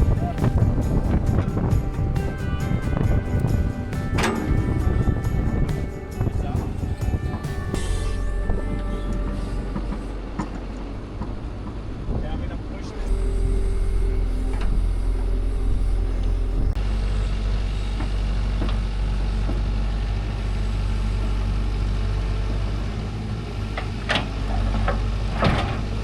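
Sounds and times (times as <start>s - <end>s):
motor idling: 0.0s - 12.0s.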